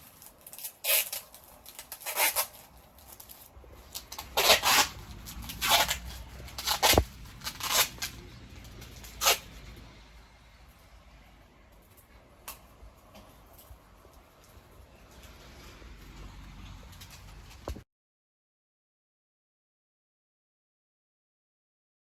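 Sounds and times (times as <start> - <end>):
scratchy rustling: 0.0 - 10.0.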